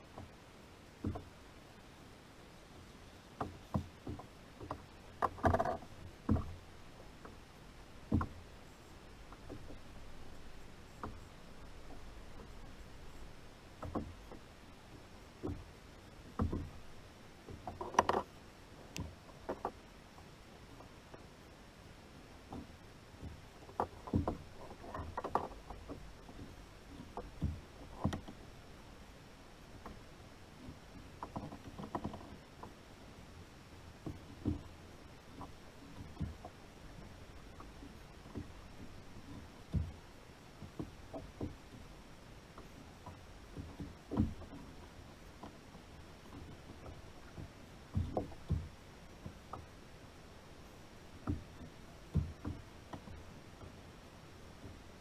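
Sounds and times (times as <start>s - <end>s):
knocks and taps on a kayak: 1.0s - 1.3s, 3.4s - 7.4s, 8.0s - 8.5s, 9.2s - 18.3s, 18.9s - 21.2s, 22.4s - 28.6s, 29.8s - 32.8s, 33.9s - 50.1s, 51.1s - 53.8s, 54.5s - 54.9s
knocks on kayak hull: 3.4s - 6.6s, 8.1s - 8.4s, 16.3s - 16.7s.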